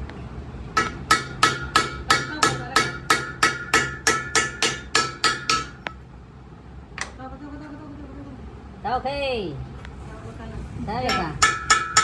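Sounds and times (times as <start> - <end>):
hammer striking steel: 0.8 - 6.0, 11.0 - 12.0.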